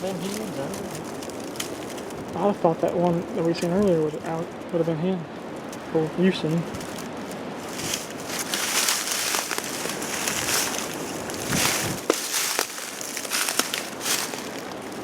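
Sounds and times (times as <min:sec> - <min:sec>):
footsteps in dry leaves: 0:00.0 - 0:02.6, 0:06.5 - 0:15.0
wind noise: 0:00.0 - 0:15.0.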